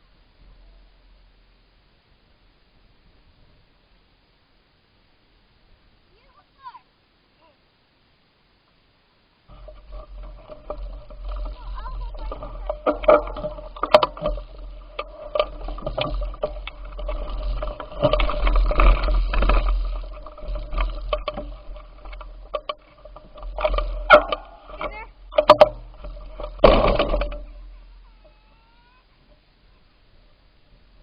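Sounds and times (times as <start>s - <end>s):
bicycle rattling and clicking: 9.5s - 28.6s.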